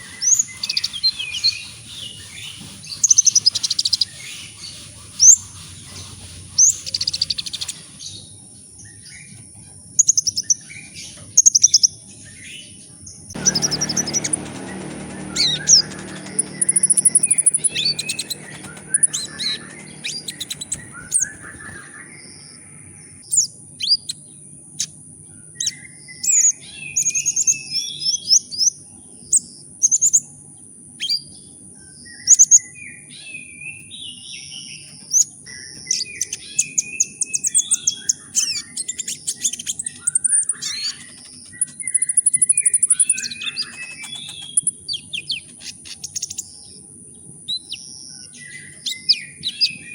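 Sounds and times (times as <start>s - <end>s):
bird chirping and trilling: 0.0s - 8.2s, 13.4s - 24.2s, 34.8s - 46.6s, 47.5s - 49.9s
thin high whine: 13.4s - 21.9s.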